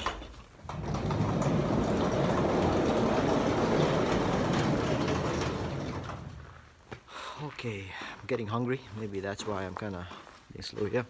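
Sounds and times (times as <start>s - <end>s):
shed door rolling open: 0.0s - 6.8s.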